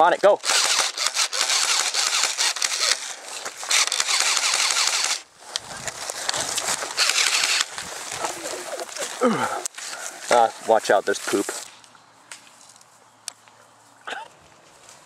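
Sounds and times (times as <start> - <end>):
airsoft rifle firing bursts: 0.4 - 3.1, 3.7 - 5.2, 7.0 - 7.7.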